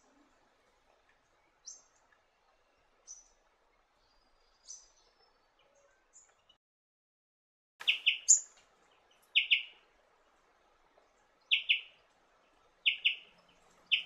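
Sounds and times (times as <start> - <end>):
small bird calling: 7.8 - 8.5, 9.3 - 9.8, 11.5 - 12.0, 12.8 - 14.0.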